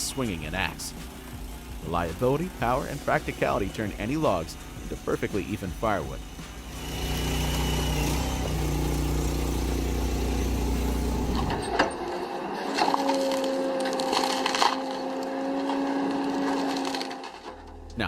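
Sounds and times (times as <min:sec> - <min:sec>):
heavy machine engine droning: 0:06.2 - 0:12.1
wood cracking and splintering: 0:10.8 - 0:17.9.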